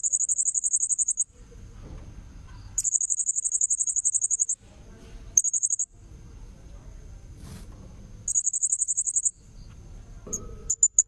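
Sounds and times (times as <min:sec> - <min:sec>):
high pulsing bird trills: 0:00.0 - 0:01.3, 0:02.8 - 0:04.6, 0:05.4 - 0:05.9, 0:08.3 - 0:09.4, 0:10.7 - 0:11.0.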